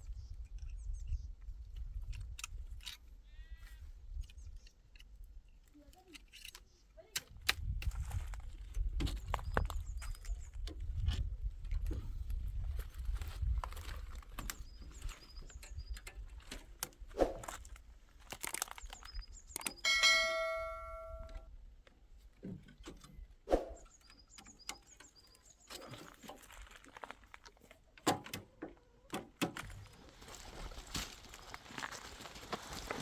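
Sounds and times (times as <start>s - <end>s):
metal object ringing: 19.8s - 21.4s.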